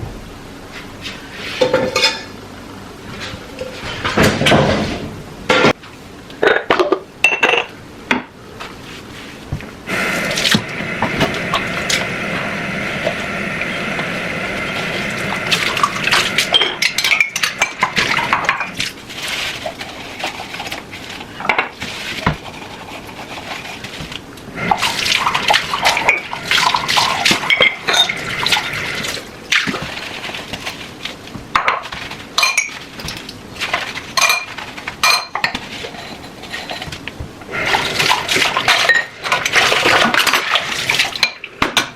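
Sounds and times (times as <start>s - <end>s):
water running: 9.9s - 35.3s, 37.5s - 41.6s
dishes and cutlery clinking: 33.8s - 37.0s.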